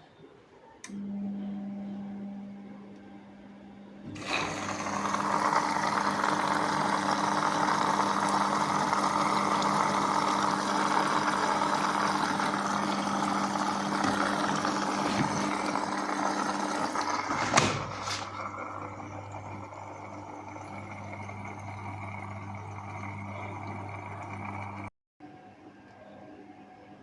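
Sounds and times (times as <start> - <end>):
washing machine spinning: 3.6 - 24.9.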